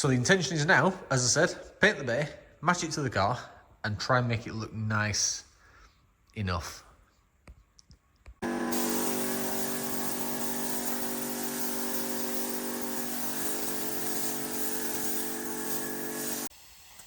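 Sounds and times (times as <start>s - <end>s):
compressor motor humming: 8.4s - 16.5s
spray gun hissing: 8.4s - 17.0s.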